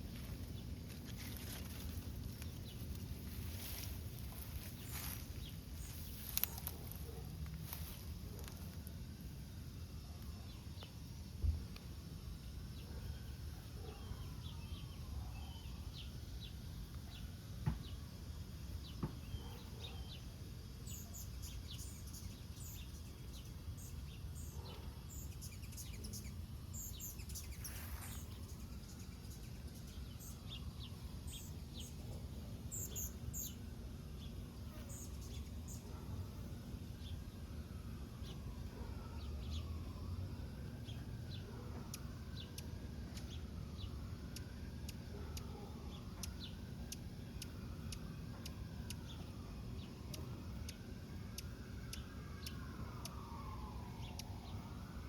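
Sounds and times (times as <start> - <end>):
small birds chirping: 0.0 - 8.9, 18.7 - 37.3, 40.8 - 55.0
low outdoor rumble: 0.0 - 15.2.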